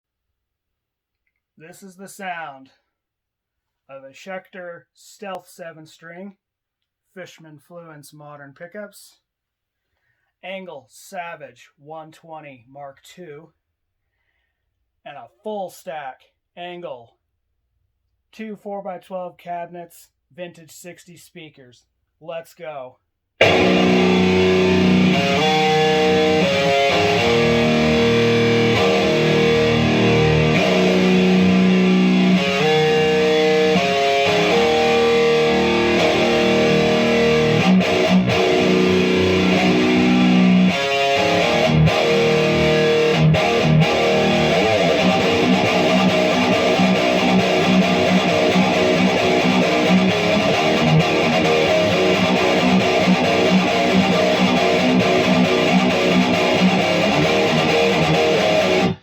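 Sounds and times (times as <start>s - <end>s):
distorted electric guitar riffs: 23.4s - 59.0s.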